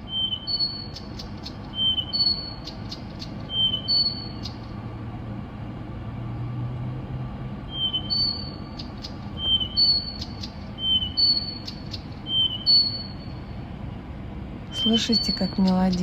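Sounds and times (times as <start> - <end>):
songbird whistling: 0.0 - 4.7, 7.7 - 13.5, 14.7 - 16.0
low steady hum: 0.0 - 16.0.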